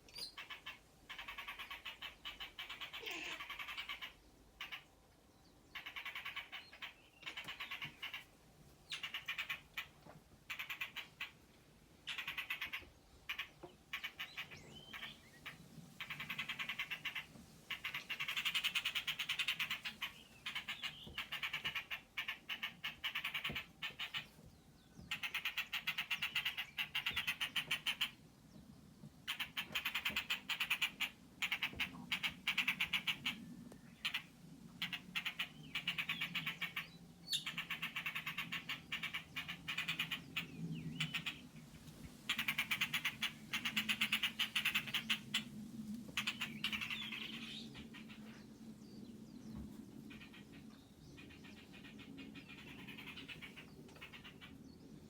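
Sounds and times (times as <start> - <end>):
songbird calling rapid notes: 5.7 - 8.3, 12.1 - 24.3, 34.0 - 41.5, 42.3 - 48.3.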